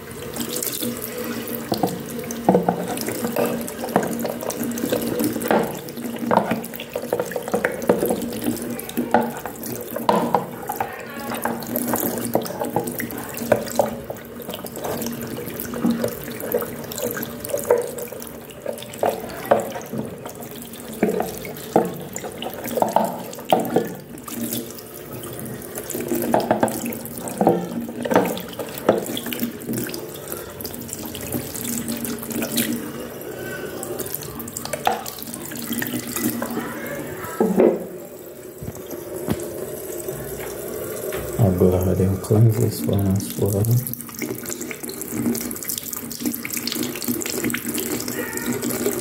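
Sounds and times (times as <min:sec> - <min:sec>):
tap water running: 0:00.0 - 0:49.0
water splashing: 0:00.0 - 0:49.0.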